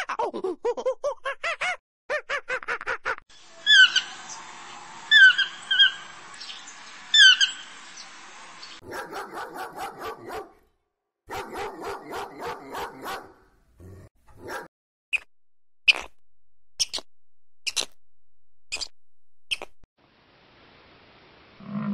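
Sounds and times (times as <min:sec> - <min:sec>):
parrot shrill calls: 0:03.6 - 0:04.3, 0:05.1 - 0:06.1, 0:07.1 - 0:07.7
dog barking: 0:08.8 - 0:10.6, 0:11.3 - 0:13.4, 0:14.4 - 0:14.7.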